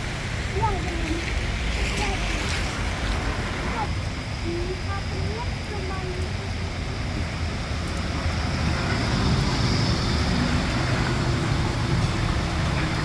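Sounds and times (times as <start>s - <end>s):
street traffic rumble: 0.0s - 13.0s
vehicle running close by: 8.0s - 13.0s.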